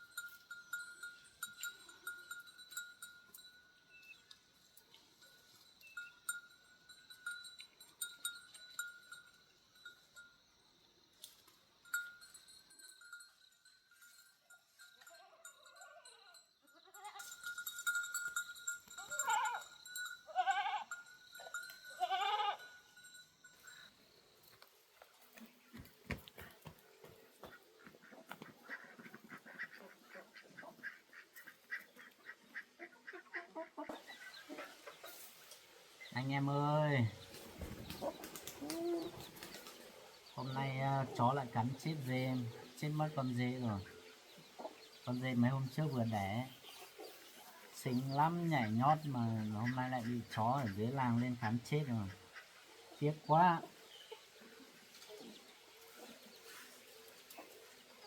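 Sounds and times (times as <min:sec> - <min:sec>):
goats bleating: 0:20.3 - 0:21.0, 0:22.0 - 0:22.7
poultry calling: 0:26.4 - 0:57.8.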